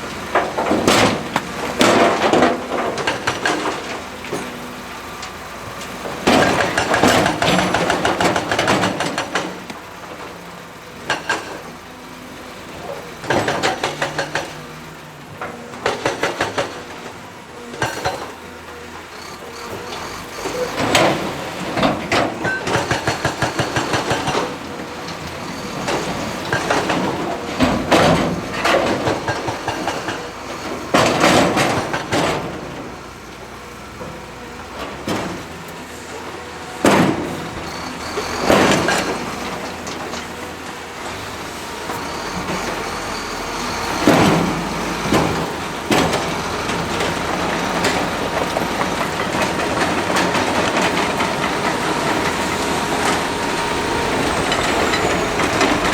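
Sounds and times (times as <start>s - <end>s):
excavator engine under load: 0.0s - 55.9s
steel bucket and tracks clanking: 0.0s - 55.9s.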